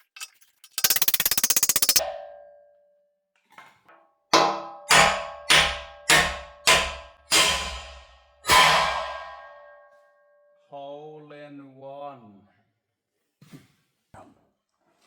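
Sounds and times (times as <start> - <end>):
hammer striking steel: 0.8 - 2.5, 4.4 - 9.8.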